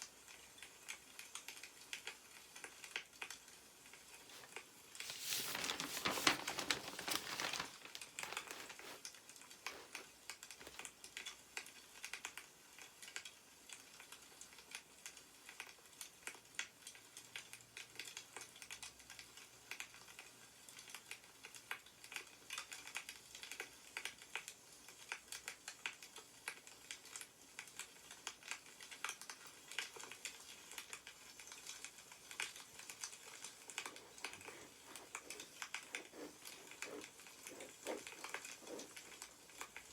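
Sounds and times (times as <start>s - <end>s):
paper rustling: 4.2s - 10.9s, 33.3s - 39.7s.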